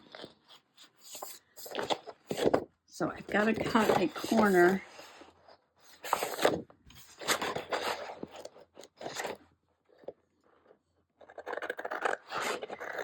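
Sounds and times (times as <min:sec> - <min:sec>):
scissors cutting paper: 0:11.2 - 0:13.0.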